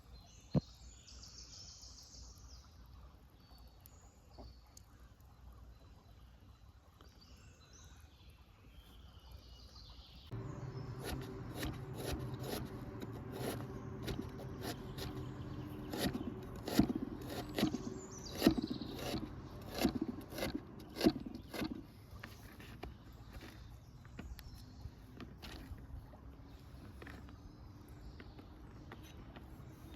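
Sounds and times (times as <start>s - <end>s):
steady low hum: 10.3s - 23.5s.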